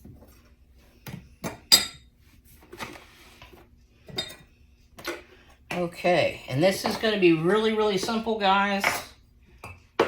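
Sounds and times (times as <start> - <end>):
dishes and utensils clinking: 1.4 - 2.1, 4.0 - 5.8, 8.0 - 10.0.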